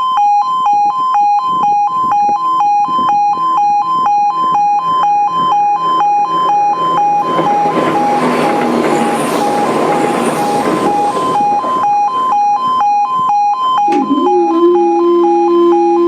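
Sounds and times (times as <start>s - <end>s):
two-tone crossing alarm beeping: 0.0s - 16.0s
train rushing rumble: 4.4s - 13.3s.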